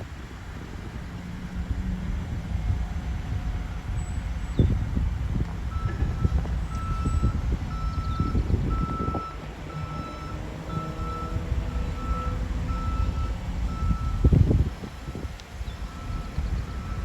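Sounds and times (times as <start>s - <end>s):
truck engine rumble: 0.0s - 17.0s
reversing alarm beeps: 5.7s - 14.3s, 15.8s - 17.0s.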